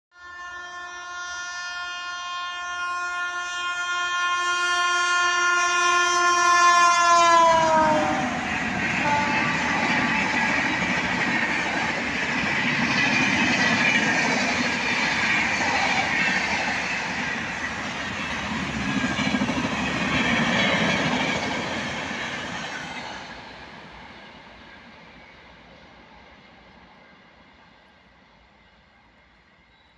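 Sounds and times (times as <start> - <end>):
train horn blast: 0.1 - 10.6
train coaches rushing past: 6.6 - 29.9.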